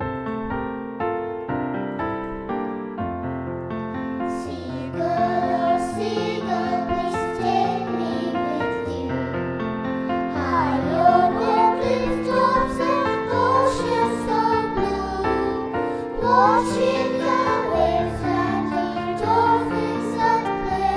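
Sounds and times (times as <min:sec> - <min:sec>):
keyboard playing piano-like intro: 0:00.0 - 0:20.9
voices singing: 0:04.3 - 0:09.3, 0:10.3 - 0:20.9.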